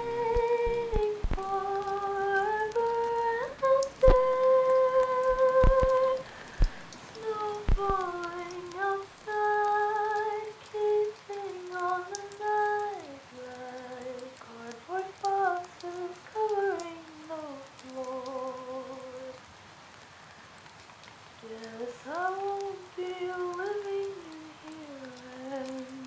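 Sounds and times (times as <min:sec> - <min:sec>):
woman humming: 0:00.0 - 0:08.6
soft clicks: 0:00.0 - 0:08.9.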